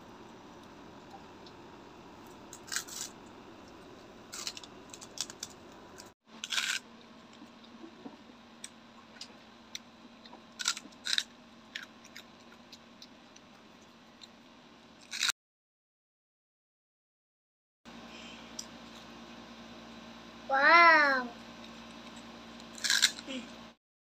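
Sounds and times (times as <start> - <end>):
crunching crispy food: 2.5 - 3.2, 4.3 - 7.8, 10.5 - 13.5, 22.6 - 23.3.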